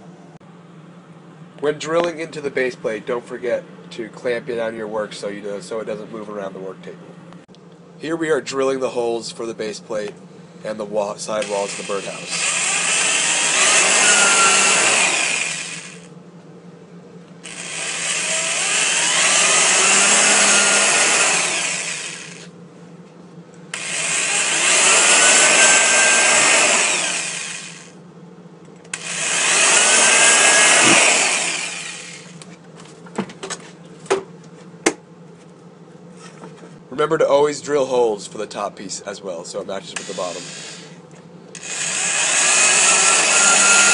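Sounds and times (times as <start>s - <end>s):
electric drill boring into wood: 11.4s - 16.1s, 17.4s - 22.5s, 23.7s - 27.9s, 28.9s - 32.4s, 40.0s - 40.9s, 41.6s - 43.9s.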